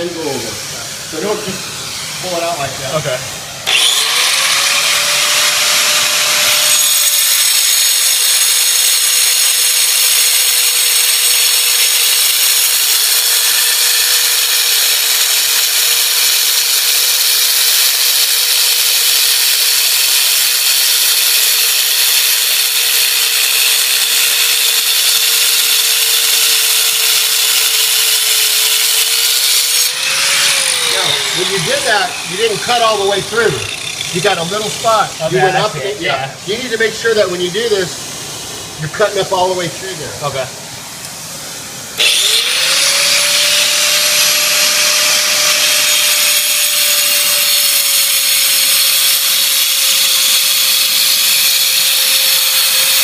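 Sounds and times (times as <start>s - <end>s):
vacuum dust extractor running: 0.0s - 5.2s
power saw cutting stone: 0.0s - 41.2s, 41.9s - 53.0s.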